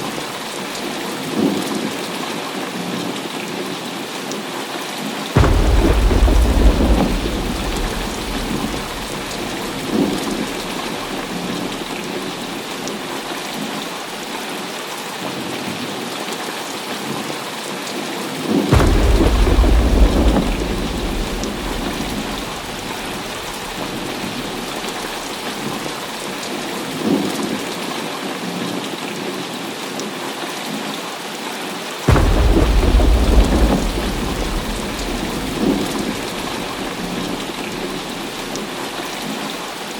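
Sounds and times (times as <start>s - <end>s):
heavy rain: 0.0s - 39.9s
thunder rumbling: 5.4s - 13.1s, 18.7s - 26.6s, 32.1s - 39.3s.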